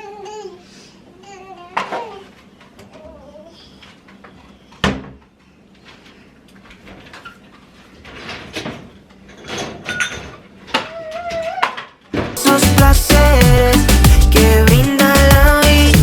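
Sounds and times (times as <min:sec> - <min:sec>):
kitchen clatter clicks and knocks: 0:08.1 - 0:10.4.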